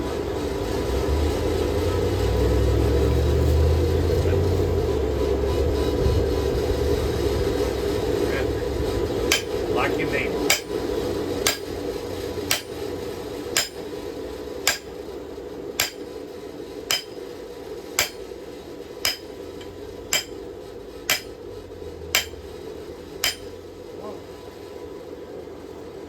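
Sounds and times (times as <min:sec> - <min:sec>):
hammer striking steel on anvil: 0:09.2 - 0:09.8, 0:10.4 - 0:11.8, 0:12.5 - 0:15.0, 0:15.8 - 0:16.2, 0:16.9 - 0:17.4, 0:18.0 - 0:18.4, 0:19.0 - 0:20.5, 0:21.1 - 0:21.5, 0:22.1 - 0:22.5, 0:23.2 - 0:23.6.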